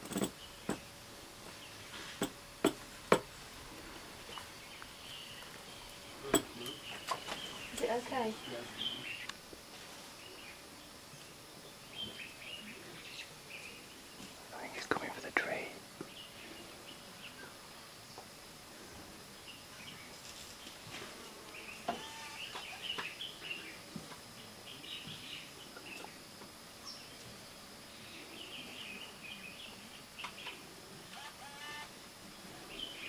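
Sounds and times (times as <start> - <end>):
birds chirping and calling: 4.2 - 9.4, 21.6 - 23.8.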